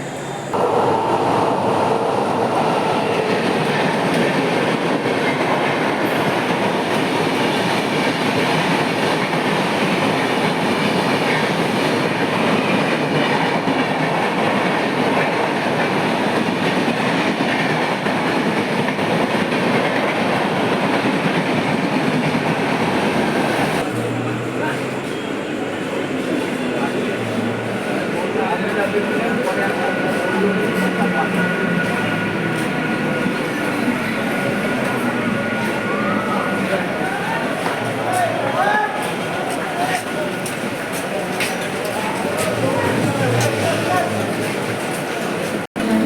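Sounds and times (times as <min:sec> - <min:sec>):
train rumbling: 0:00.0 - 0:46.0
train wheels clattering on track: 0:01.7 - 0:25.2, 0:36.6 - 0:46.0.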